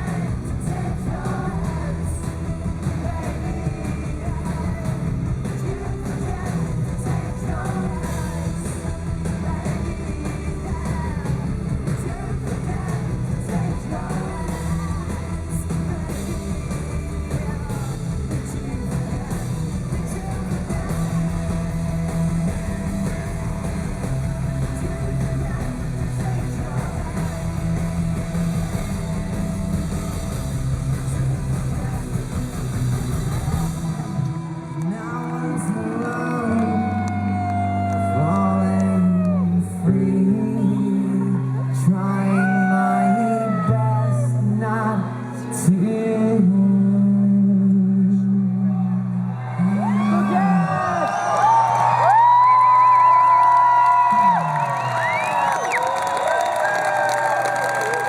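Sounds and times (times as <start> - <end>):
rock band playing live: 0.0 - 40.5.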